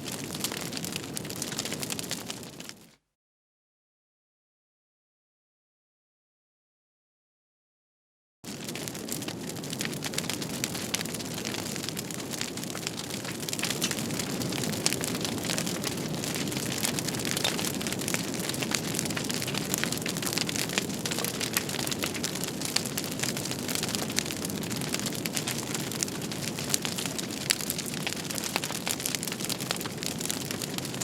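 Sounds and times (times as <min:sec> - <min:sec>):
wood fire crackling and popping: 0:00.0 - 0:02.9, 0:08.5 - 0:31.0.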